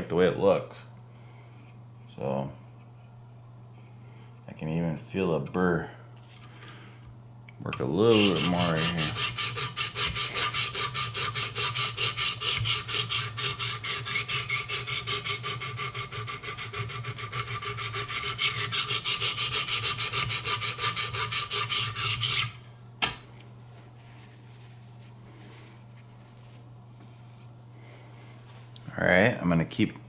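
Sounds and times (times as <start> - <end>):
sharpening rods stroking knife edge: 8.1 - 22.6.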